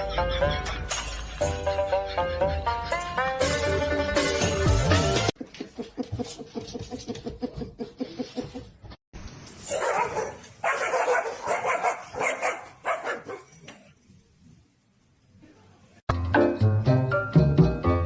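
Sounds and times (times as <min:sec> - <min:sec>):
dog barking: 0:09.7 - 0:13.5.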